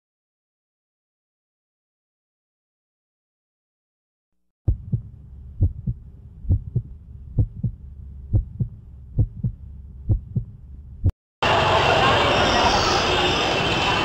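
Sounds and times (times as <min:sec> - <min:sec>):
heartbeat thumps: 0:04.7 - 0:11.1
low steady hum: 0:04.7 - 0:11.1.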